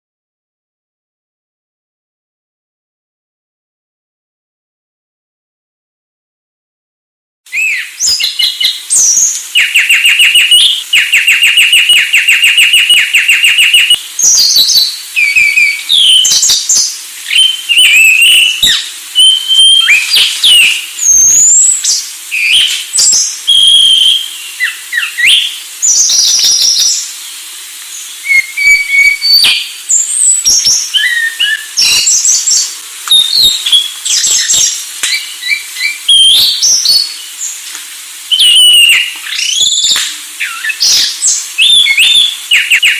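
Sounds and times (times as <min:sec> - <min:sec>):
thrush singing whistled phrases: 0:07.5 - 0:37.6, 0:38.2 - 0:42.9.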